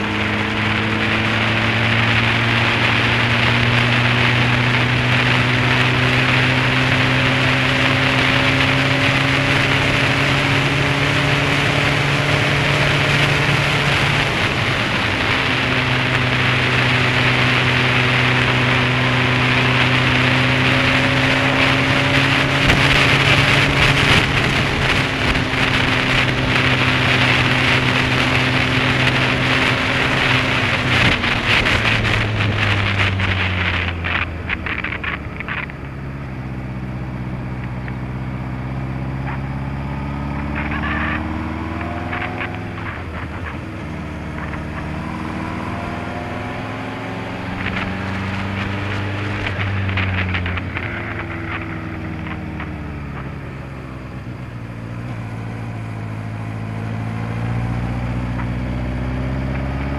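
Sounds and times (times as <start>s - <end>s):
motorcycle engine running: 0.0s - 59.9s
wind noise on microphone: 0.0s - 59.9s.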